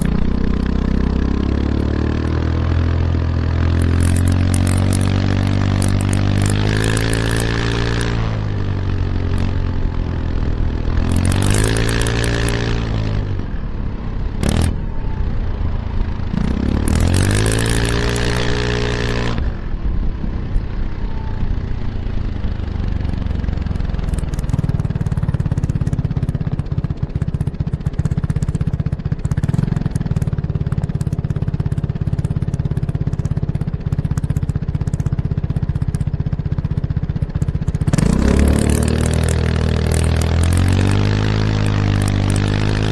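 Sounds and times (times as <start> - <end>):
scooter exhaust while riding: 0.0 - 42.9
sharp click: 3.7 - 8.2, 24.0 - 24.7, 38.0 - 42.9.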